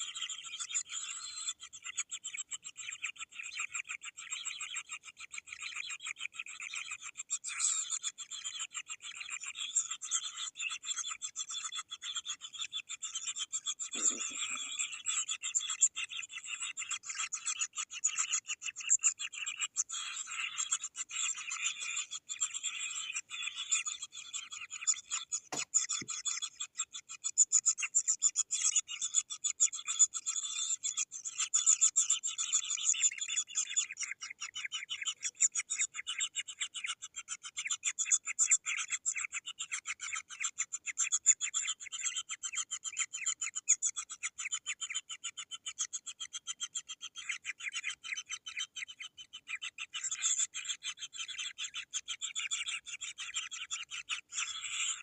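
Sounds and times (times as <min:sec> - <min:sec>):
nestlings raspy chatter: 0:11.7 - 0:15.6, 0:16.2 - 0:28.4
chicks begging with rasping calls: 0:13.9 - 0:15.2.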